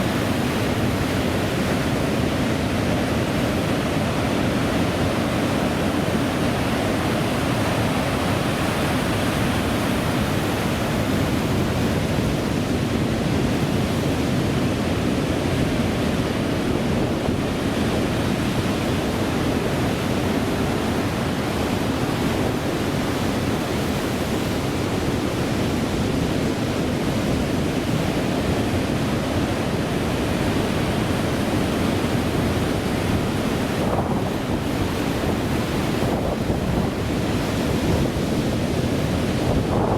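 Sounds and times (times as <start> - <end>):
ocean surf rushing: 0.0 - 39.9
wind: 0.0 - 39.9
wind buffeting microphone: 0.0 - 39.9.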